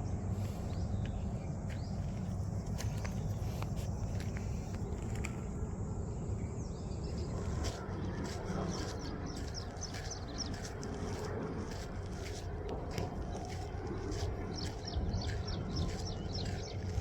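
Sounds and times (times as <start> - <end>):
low outdoor rumble: 0.0 - 17.0
bird chirping: 6.4 - 12.4, 13.3 - 17.0.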